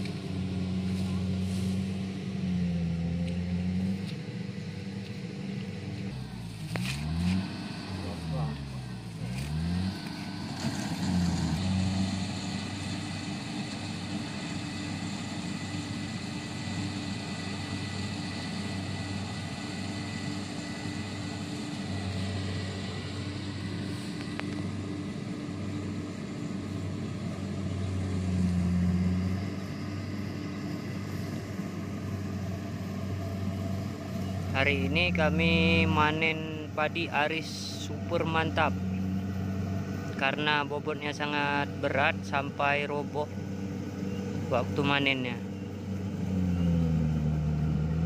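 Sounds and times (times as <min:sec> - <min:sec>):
diesel engine running under load: 0:00.0 - 0:48.0
harvester machinery clattering: 0:09.2 - 0:15.5.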